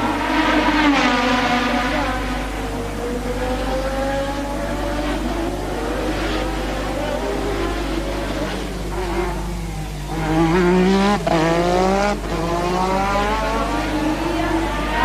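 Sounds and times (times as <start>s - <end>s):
racing car engine accelerating: 0.0s - 15.0s.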